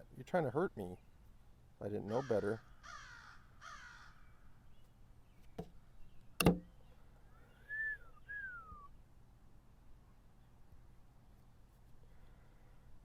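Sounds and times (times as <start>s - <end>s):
whistled calls: 7.4s - 8.9s.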